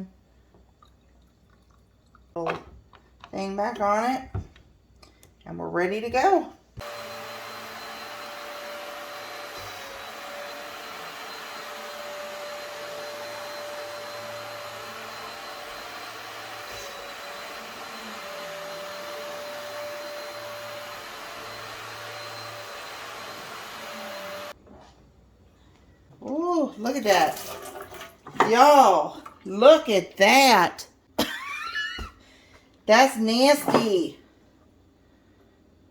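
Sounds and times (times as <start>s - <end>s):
carpet cleaner motor whining: 6.8s - 24.6s.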